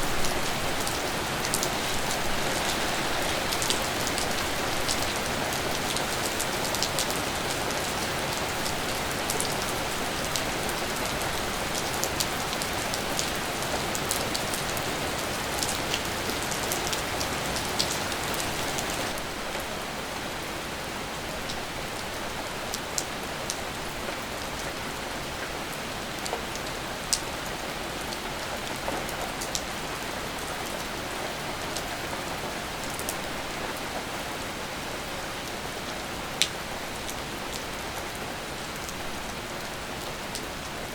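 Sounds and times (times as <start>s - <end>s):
steady rain hissing: 0.0s - 40.9s.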